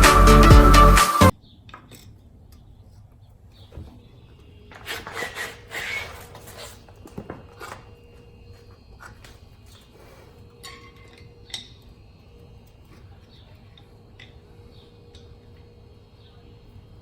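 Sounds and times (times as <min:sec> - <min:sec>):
music: 0:00.0 - 0:01.3
rustling and scraping: 0:04.7 - 0:11.3.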